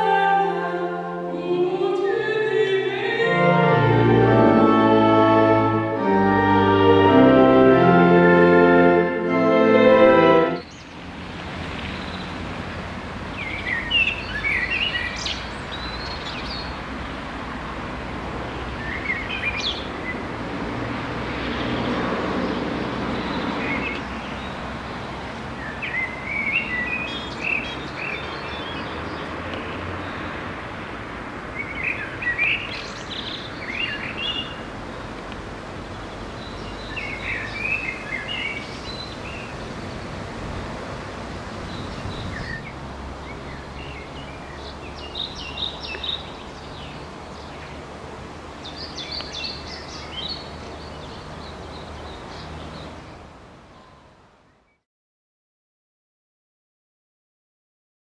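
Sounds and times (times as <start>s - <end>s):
songbirds chirping: 0.0s - 20.5s, 21.4s - 40.3s, 40.9s - 54.8s.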